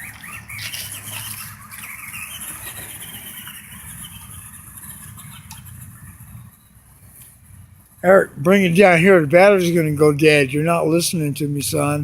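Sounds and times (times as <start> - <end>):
rc car electric motor whining: 0.0 - 6.5.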